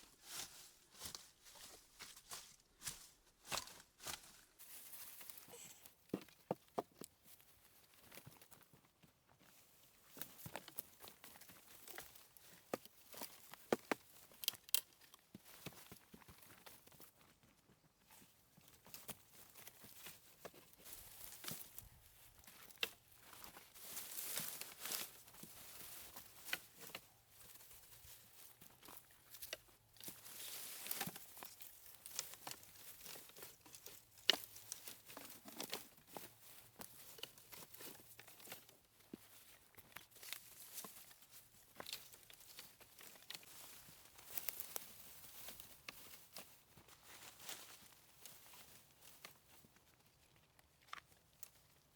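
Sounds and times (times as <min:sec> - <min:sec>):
dry leaves rustling and crinkling: 0:00.2 - 0:05.7, 0:18.9 - 0:50.0
twigs clicking and snapping: 0:11.7 - 0:15.8, 0:28.8 - 0:38.6, 0:41.7 - 0:46.2.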